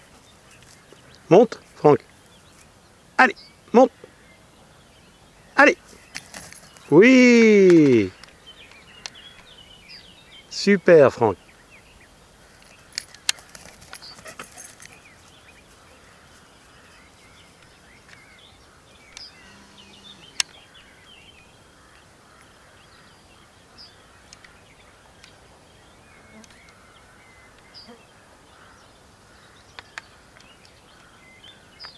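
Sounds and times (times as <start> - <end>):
bird chirps and calls: 0.0 - 31.9
faint field ambience: 0.0 - 31.9
sharp clicks: 20.3 - 20.6.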